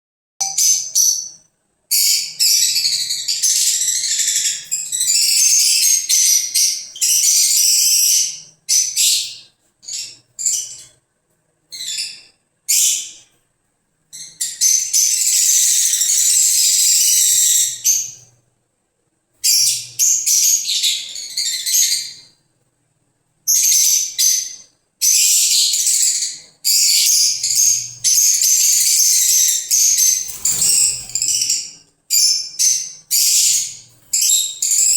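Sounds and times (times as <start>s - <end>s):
lovebirds chirping and screeching: 23.5s - 34.9s.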